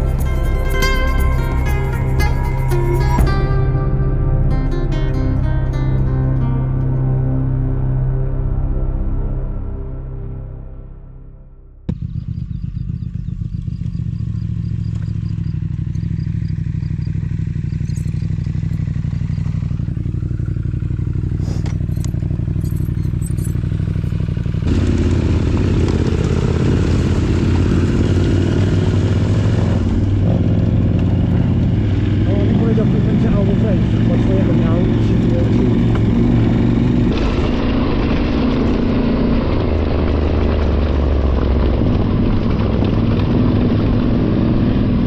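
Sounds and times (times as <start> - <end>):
motorcycle engine running: 0.0 - 5.3, 11.9 - 45.0
clatter: 11.9 - 31.8, 35.0 - 45.0.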